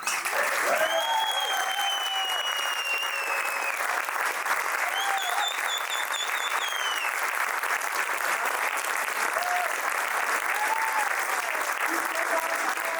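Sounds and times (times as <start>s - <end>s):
audience applauding: 0.0s - 12.9s
long whistles: 0.8s - 3.9s, 4.8s - 7.2s.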